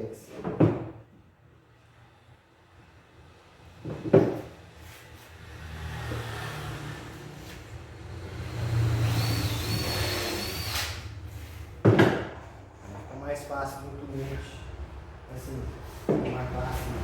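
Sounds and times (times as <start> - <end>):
car driving past: 4.4 - 13.1.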